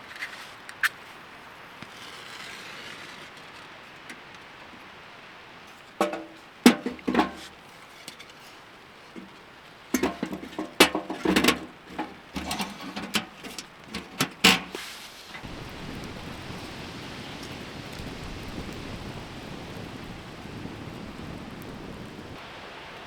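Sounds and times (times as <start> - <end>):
light rain pattering: 0.0 - 23.0
hard objects knocking and clanking: 5.7 - 8.5, 9.1 - 15.4.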